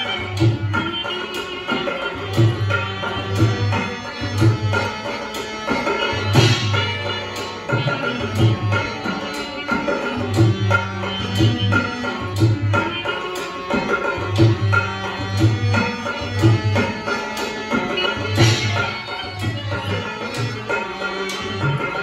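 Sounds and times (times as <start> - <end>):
sustained melodic instrument: 0.0 - 22.0
hand drum beating: 5.7 - 22.0.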